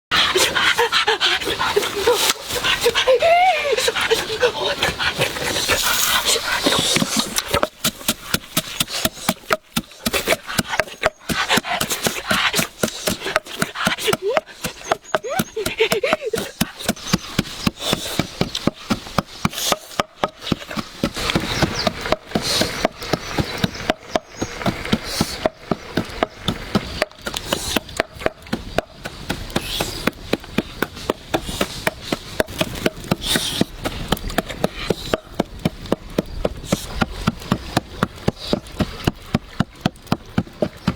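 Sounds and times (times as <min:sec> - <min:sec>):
knife chopping on wooden board: 0:06.9 - 0:23.2.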